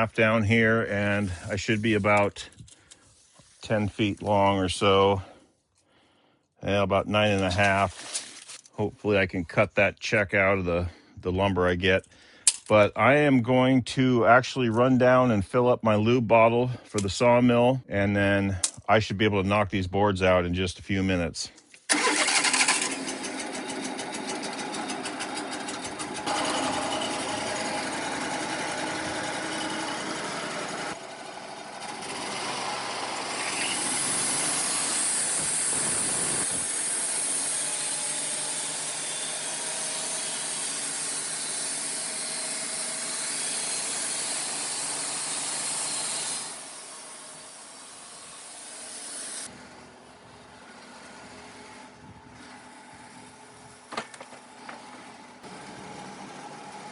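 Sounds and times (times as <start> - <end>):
engine running: 21.9 - 56.9.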